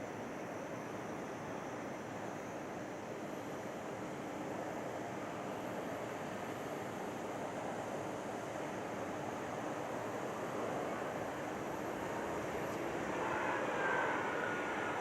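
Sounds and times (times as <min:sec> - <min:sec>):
distant jet engines rushing: 0:08.2 - 0:15.0.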